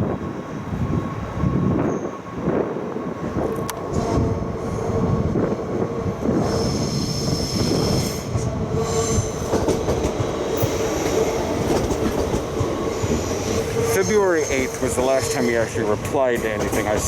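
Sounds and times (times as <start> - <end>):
train rumbling on rails: 0.0 - 17.0
wheels squealing: 10.6 - 17.0.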